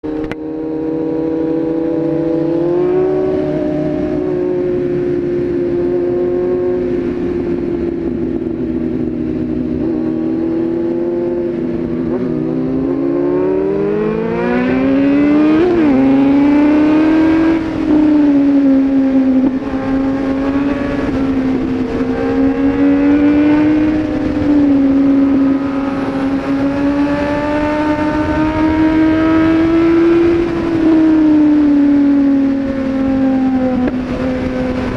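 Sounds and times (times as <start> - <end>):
vehicle engine running: 2.7 - 12.6.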